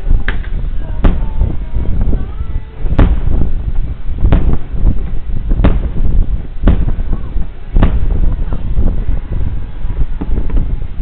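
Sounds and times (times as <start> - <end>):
low rumble: 0.0 - 11.0
fireworks bangs: 0.1 - 11.0.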